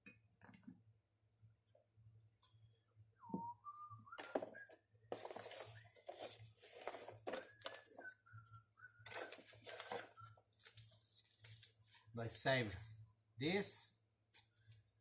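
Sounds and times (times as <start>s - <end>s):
man whistling: 3.2s - 4.9s, 7.6s - 9.4s.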